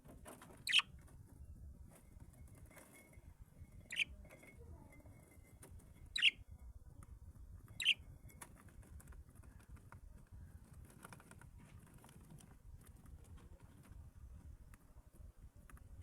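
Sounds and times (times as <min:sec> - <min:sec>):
cage bird chirps: 0:00.6 - 0:00.9, 0:03.8 - 0:04.2, 0:06.1 - 0:06.4, 0:07.8 - 0:08.0
birds scratching in cage: 0:07.6 - 0:14.0.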